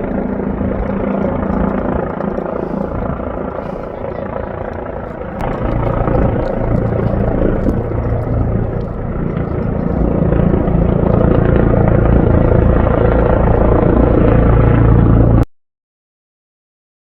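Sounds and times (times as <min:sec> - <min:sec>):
helicopter rotor and engine: 0:00.0 - 0:15.4.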